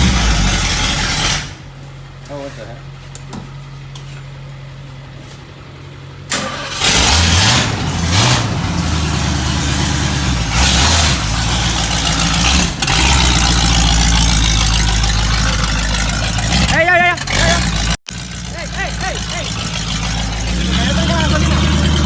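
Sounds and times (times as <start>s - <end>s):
car engine starting and revving: 0.0s - 1.7s, 6.2s - 22.0s.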